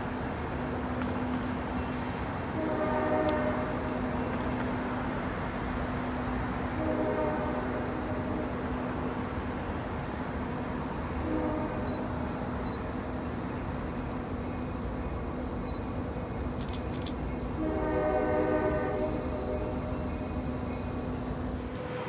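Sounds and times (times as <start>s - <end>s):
locomotive engine running: 0.0s - 22.0s
locomotive horn blasts: 2.4s - 4.6s, 6.6s - 8.6s, 11.1s - 12.3s, 17.5s - 20.4s.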